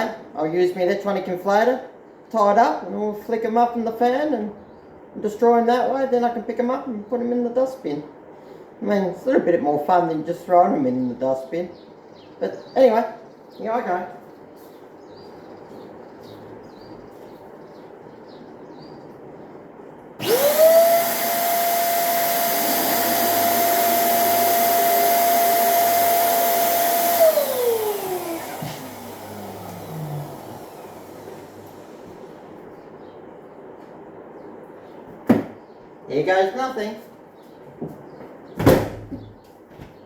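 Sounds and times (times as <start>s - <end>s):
electric balloon inflator whining: 20.2s - 32.4s.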